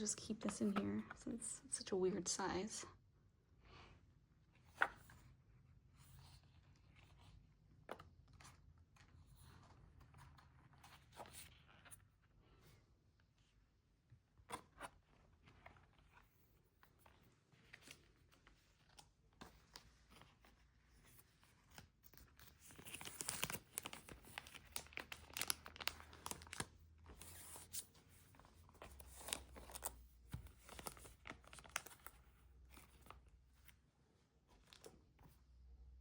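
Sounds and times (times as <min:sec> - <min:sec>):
packaging tearing and crinkling: 0:22.6 - 0:26.7.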